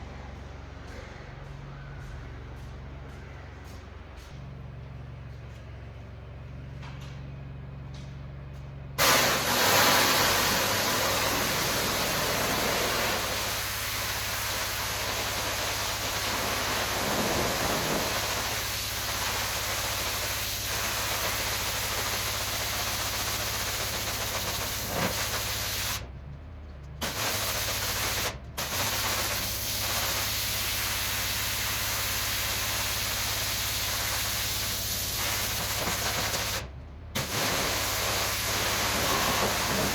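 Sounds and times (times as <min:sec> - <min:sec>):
high-pressure water spray hiss: 0:09.0 - 0:26.0, 0:27.0 - 0:39.9
pressure washer motor hum: 0:09.0 - 0:26.0, 0:27.0 - 0:39.9.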